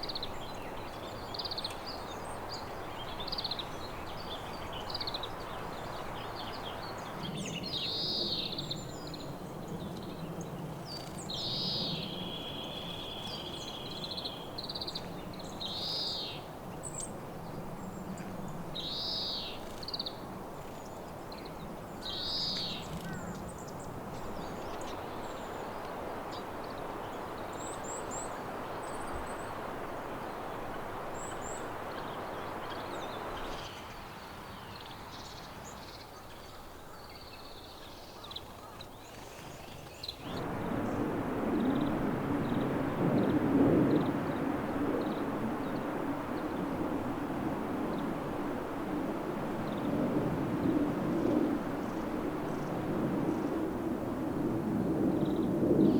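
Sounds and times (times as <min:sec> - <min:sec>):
steady background hiss: 0:00.0 - 0:55.9
small songbird calling: 0:11.0 - 0:16.4, 0:18.8 - 0:20.2, 0:22.0 - 0:23.4.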